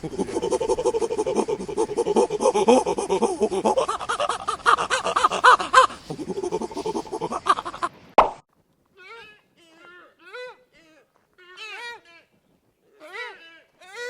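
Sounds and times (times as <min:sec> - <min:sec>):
chimpanzee hooting: 0:00.0 - 0:07.9.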